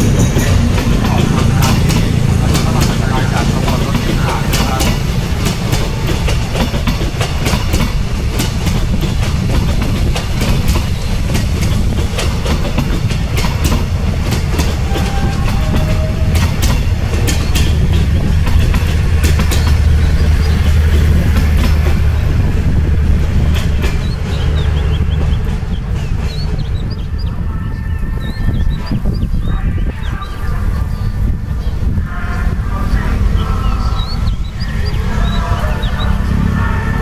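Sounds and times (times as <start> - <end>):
wheels clicking over rail joints: 0.0 - 27.1
train rumbling past: 0.0 - 37.0.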